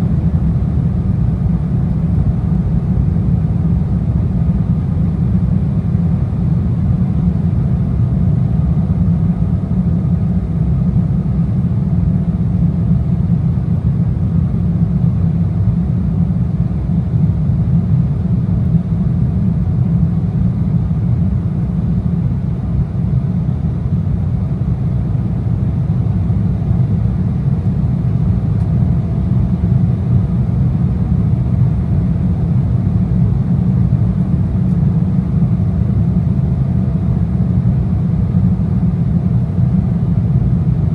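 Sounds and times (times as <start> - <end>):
airplane cabin drone: 0.0 - 40.9
faint steady hum: 0.0 - 40.9.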